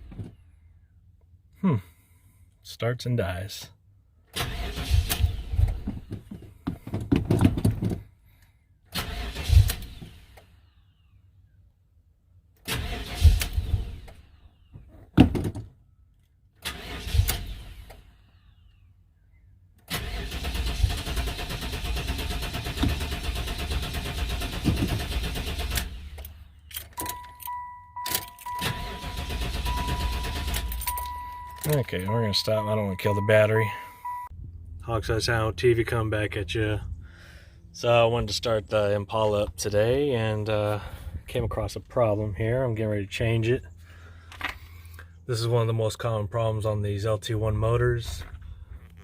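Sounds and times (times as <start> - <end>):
car engine cranking and stalling: 4.3 - 8.1, 8.9 - 10.8, 12.6 - 14.6, 16.6 - 18.5, 19.8 - 34.3
car warning chime beeping: 27.0 - 34.3.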